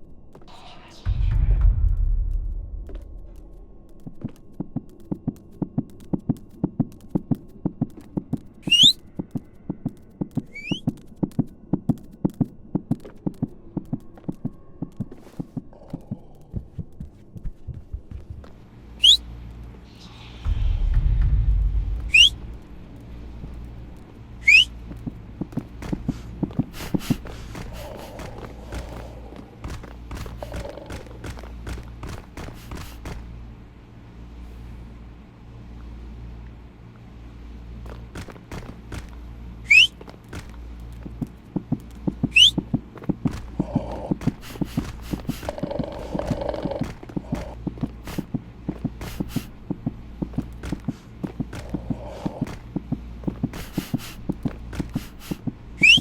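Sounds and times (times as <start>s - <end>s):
dog whining: 55.8s - 56.0s.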